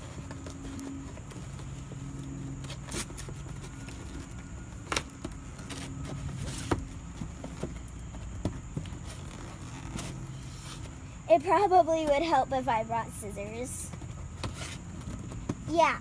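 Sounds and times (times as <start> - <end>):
packaging handling noise: 0.0 - 11.1.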